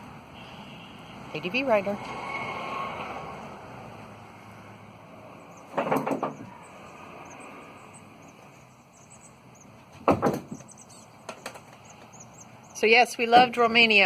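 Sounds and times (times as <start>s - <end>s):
faint bird chirps: 5.4s - 9.8s, 10.5s - 12.9s
knocks and rattles: 5.7s - 6.6s, 9.8s - 12.2s.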